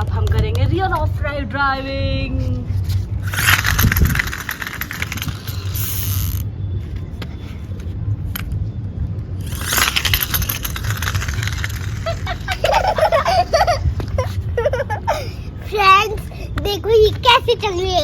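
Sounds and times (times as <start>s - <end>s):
steady low rumble: 0.0s - 16.8s
toy car flywheel whirring: 3.2s - 6.5s, 9.4s - 14.9s.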